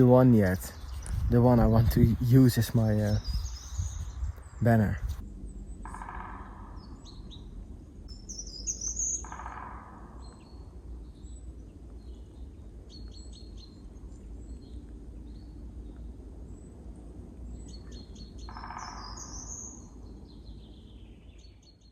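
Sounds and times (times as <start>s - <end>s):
harsh low sound: 0.0s - 8.1s
low outdoor ambience rumble: 0.0s - 21.9s
small birds chirping: 0.0s - 21.9s.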